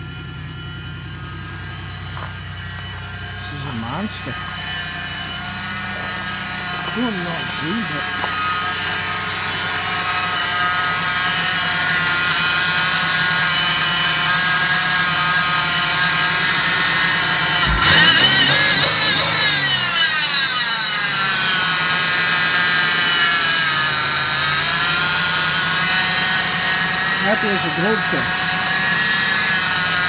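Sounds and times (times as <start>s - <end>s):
engine idling with high whine: 0.0s - 30.0s
sharp engine knock: 17.6s - 20.0s.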